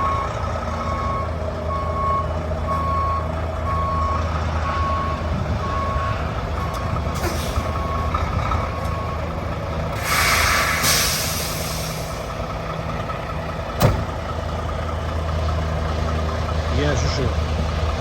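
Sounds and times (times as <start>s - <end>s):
truck backup alarm beeping: 0.0s - 14.6s
diesel engine running: 0.0s - 18.0s
air brake hiss: 10.0s - 12.3s.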